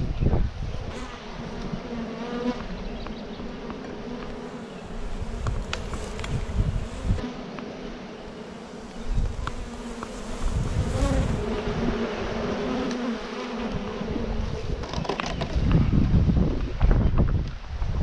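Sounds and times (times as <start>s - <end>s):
honey bees buzzing: 0.5s - 15.7s
low rumbling on microphone: 14.0s - 18.0s.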